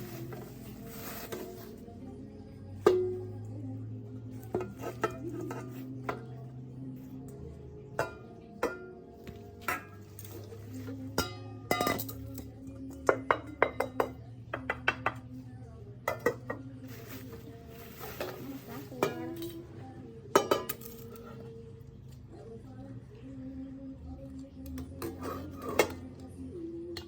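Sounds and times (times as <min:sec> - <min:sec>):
background music: 0:00.0 - 0:27.0
dishes and pans clinking: 0:04.4 - 0:06.4, 0:07.9 - 0:15.2, 0:16.1 - 0:19.7, 0:20.3 - 0:21.5, 0:25.0 - 0:26.2.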